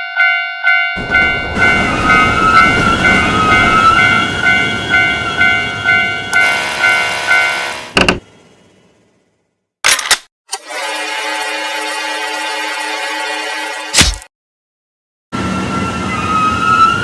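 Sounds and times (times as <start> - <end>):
railroad crossing alarm ringing: 0.0 - 8.0
train rumbling: 1.0 - 9.4
wavering horn-like tone: 6.3 - 7.9, 10.7 - 13.9.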